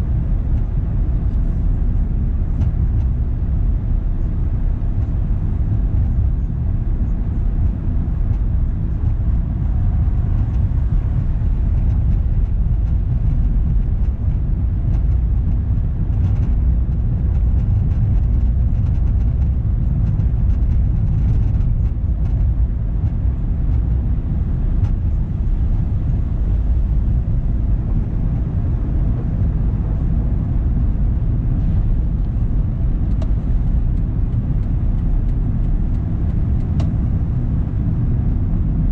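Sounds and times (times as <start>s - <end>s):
car driving road rumble: 0.0s - 38.9s
faint light ticks: 33.1s - 37.0s.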